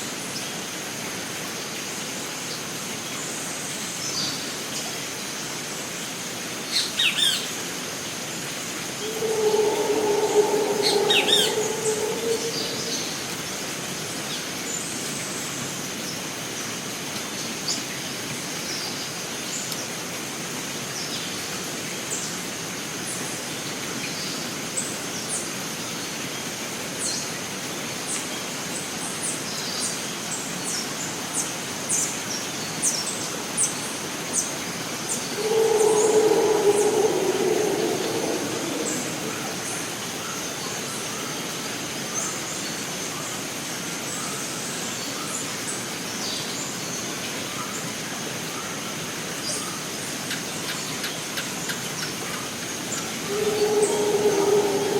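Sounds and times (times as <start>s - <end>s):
background hiss: 8.6s - 14.3s, 34.9s - 42.0s, 52.9s - 54.9s
high insect drone: 8.8s - 13.9s, 35.1s - 40.7s, 53.1s - 54.9s
low steady tone: 9.0s - 13.4s.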